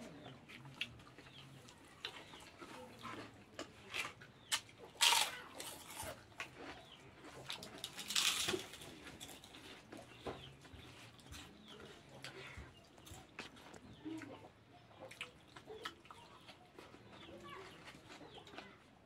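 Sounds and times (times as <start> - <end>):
chewing and mouth smacking: 0.4 - 18.9
noisy crunches: 4.5 - 6.7.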